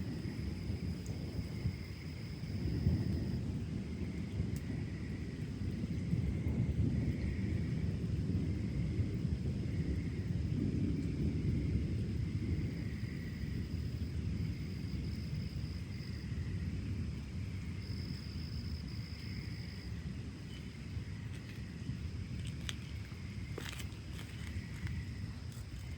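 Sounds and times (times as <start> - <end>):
distant thunder rumbling: 0.0 - 25.9
insects trilling: 0.0 - 25.9.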